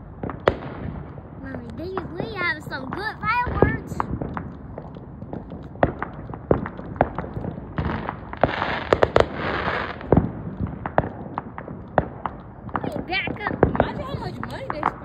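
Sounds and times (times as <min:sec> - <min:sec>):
fireworks banging: 0:00.0 - 0:15.0
fireworks hissing: 0:07.0 - 0:10.3.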